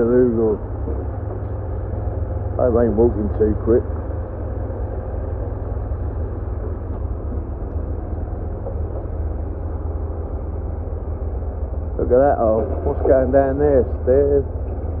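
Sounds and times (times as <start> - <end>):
faint hum: 0.0 - 15.0
low outdoor rumble: 0.0 - 15.0.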